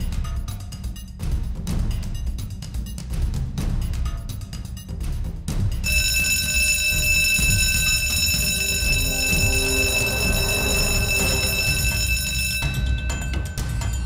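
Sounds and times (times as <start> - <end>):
electric alarm ringing: 5.8 - 14.0.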